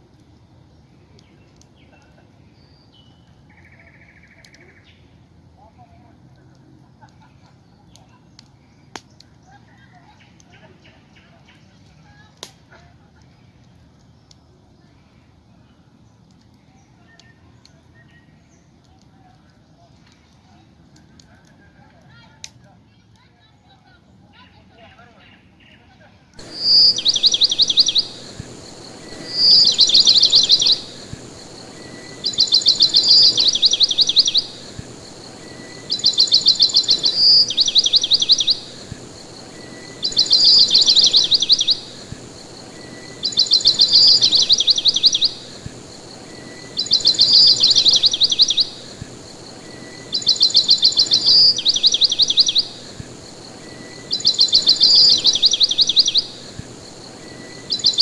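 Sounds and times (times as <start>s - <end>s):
songbird singing with trill: 2.6s - 5.1s, 26.4s - 58.0s.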